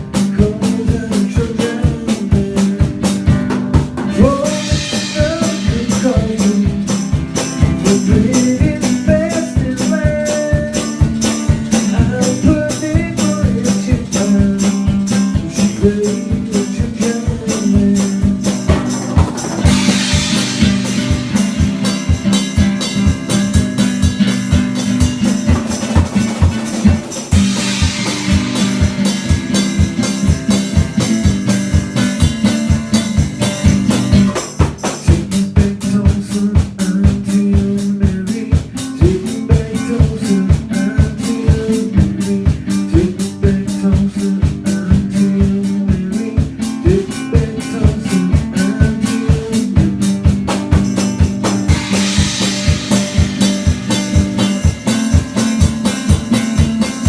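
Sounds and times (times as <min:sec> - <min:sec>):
drum kit beat: 0:00.0 - 0:57.0
guitar: 0:00.0 - 0:57.0
higher melodic line: 0:18.6 - 0:25.9, 0:27.3 - 0:32.4, 0:51.1 - 0:57.0
cymbal crashes: 0:18.8 - 0:25.7, 0:27.2 - 0:30.7, 0:50.9 - 0:56.3.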